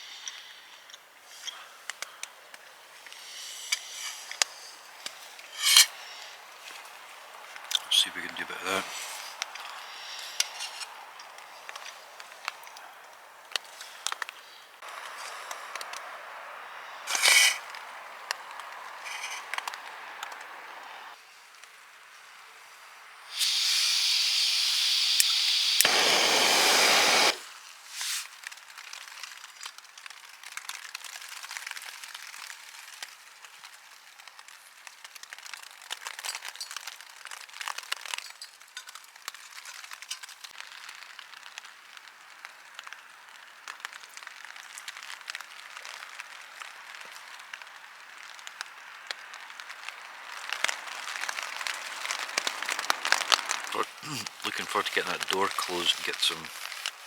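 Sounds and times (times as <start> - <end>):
rain pattering on a tent: 0.3 - 23.4, 26.1 - 57.0
loud steady hiss: 2.8 - 6.5, 22.6 - 28.1, 53.7 - 56.6.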